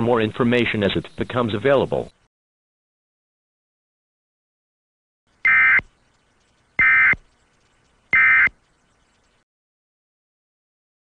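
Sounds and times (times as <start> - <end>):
digital data tone bursts: 5.4 - 5.9, 6.8 - 7.3, 8.1 - 8.6.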